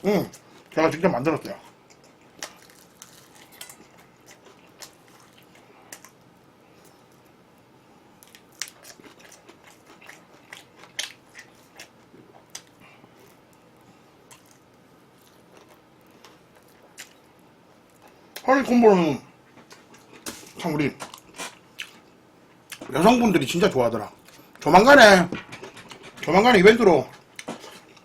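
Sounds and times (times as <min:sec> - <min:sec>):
person chewing crunchy food: 0:01.6 - 0:07.4, 0:08.2 - 0:18.4, 0:19.6 - 0:22.9, 0:27.1 - 0:28.0.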